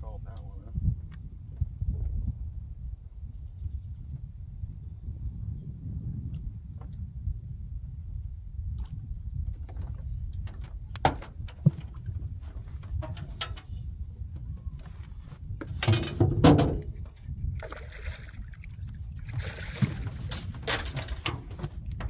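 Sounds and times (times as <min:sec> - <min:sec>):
steady low rumble: 0:00.0 - 0:22.0
water splashing against boat: 0:15.0 - 0:22.0.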